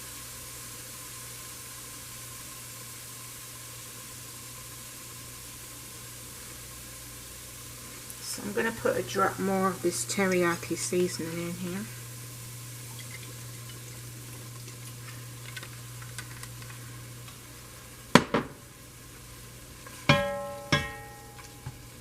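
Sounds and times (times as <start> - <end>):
chicken sizzling in a frying pan: 0.0 - 22.0
steady low hum: 8.1 - 22.0
utensil clinking against pan: 20.1 - 21.8.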